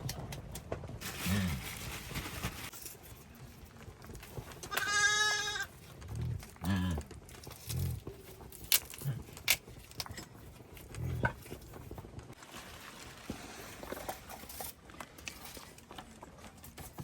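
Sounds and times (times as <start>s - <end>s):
farm animal bleating: 4.7s - 5.7s.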